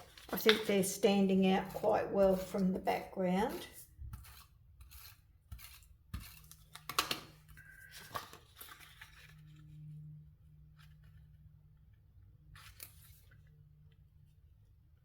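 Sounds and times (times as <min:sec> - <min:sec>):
paper rustling and scraping: 0:00.0 - 0:10.0, 0:12.5 - 0:13.5
faint low hum: 0:07.4 - 0:15.0.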